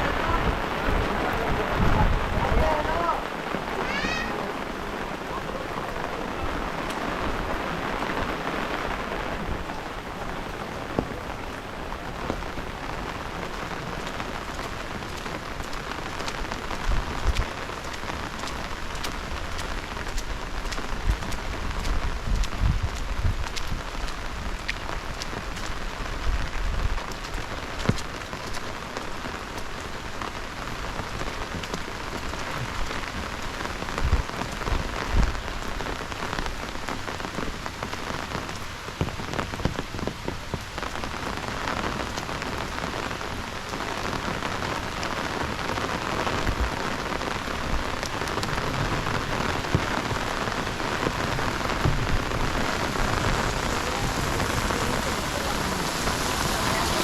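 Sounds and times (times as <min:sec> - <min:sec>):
heavy rain falling: 0:00.0 - 0:57.0
low thumps: 0:50.8 - 0:55.1.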